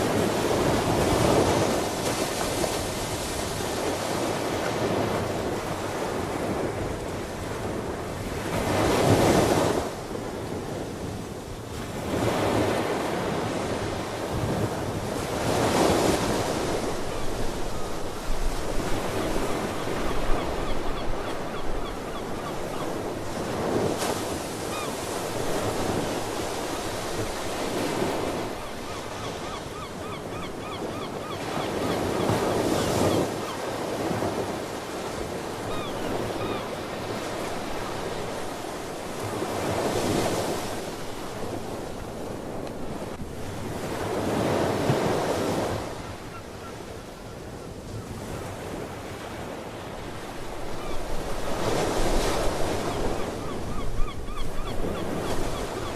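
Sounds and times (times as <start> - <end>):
ocean waves breaking: 0.0 - 55.9
faint sea bird calls: 19.2 - 23.1, 24.6 - 25.1, 28.5 - 33.7, 35.6 - 38.1, 45.9 - 48.2, 50.7 - 51.2, 52.7 - 55.9.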